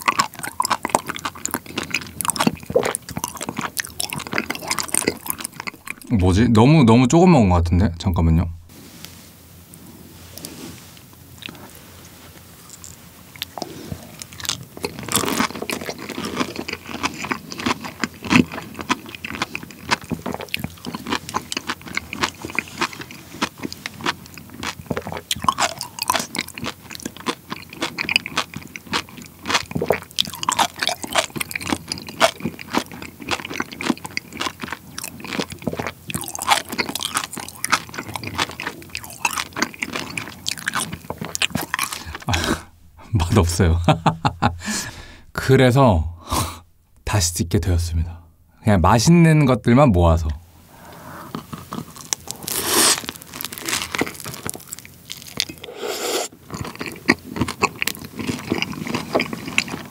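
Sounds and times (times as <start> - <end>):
wet crunching chewing: 0.0 - 6.2, 12.6 - 45.6, 51.2 - 59.9.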